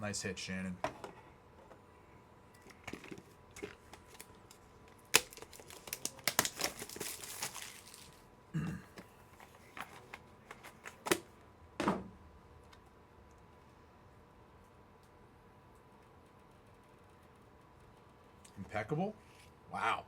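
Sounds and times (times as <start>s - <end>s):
packaging crinkling: 2.6s - 8.3s.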